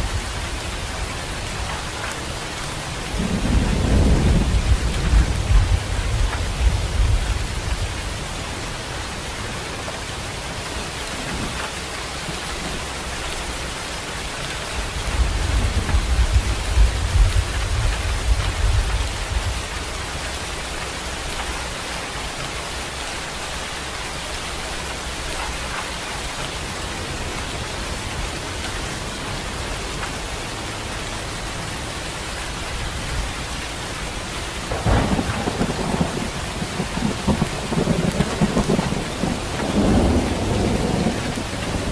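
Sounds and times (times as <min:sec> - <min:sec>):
steady rain falling: 0:00.0 - 0:41.9
rolling thunder: 0:03.1 - 0:08.0, 0:34.6 - 0:41.9.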